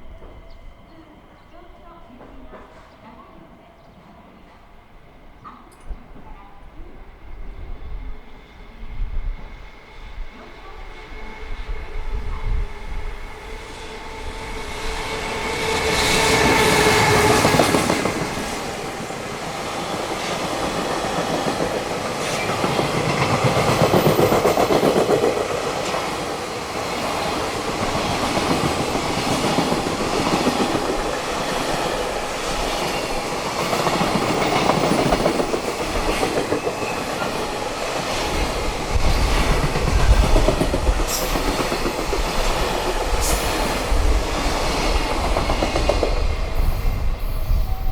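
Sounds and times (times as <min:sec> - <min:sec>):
train wheels clattering over rails: 0:14.9 - 0:46.9.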